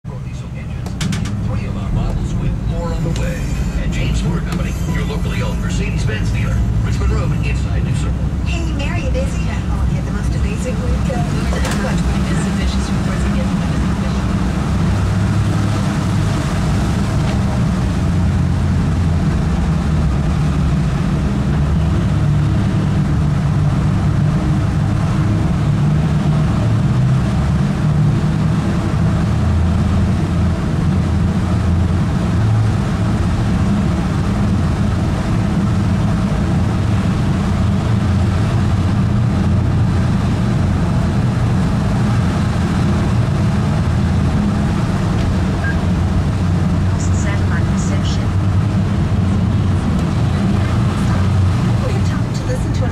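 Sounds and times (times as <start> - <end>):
car engine and tyres rumbling: 0.0 - 52.9.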